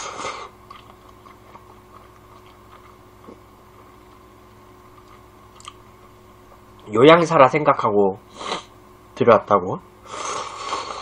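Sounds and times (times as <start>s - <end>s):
person chewing noodles: 0.0s - 5.9s
low electrical hum: 0.0s - 11.0s.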